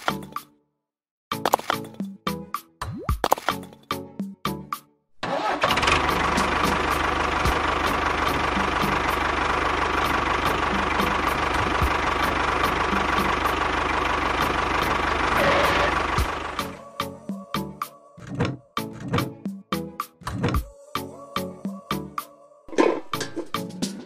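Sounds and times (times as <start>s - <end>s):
small tractor engine rumbling: 5.2s - 17.3s.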